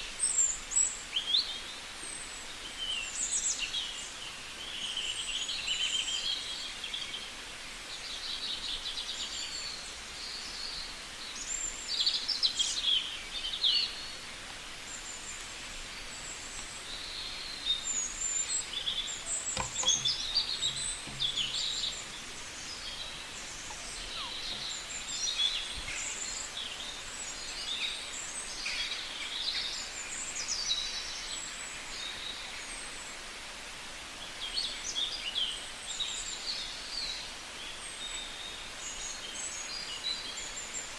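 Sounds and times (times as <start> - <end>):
outdoor background hiss: 0.0 - 40.9
birds chirping: 3.0 - 4.0, 11.6 - 29.7.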